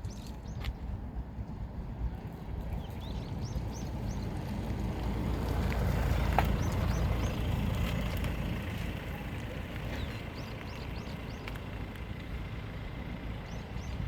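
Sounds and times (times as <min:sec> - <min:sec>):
small birds chirping: 0:00.0 - 0:00.9, 0:02.7 - 0:04.8, 0:06.1 - 0:12.2, 0:13.0 - 0:14.0.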